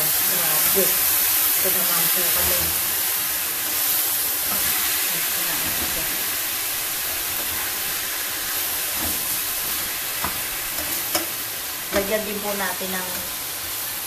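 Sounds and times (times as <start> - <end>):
chicken sizzling in a pan: 0.0 - 14.0
spatula stirring: 3.5 - 12.1.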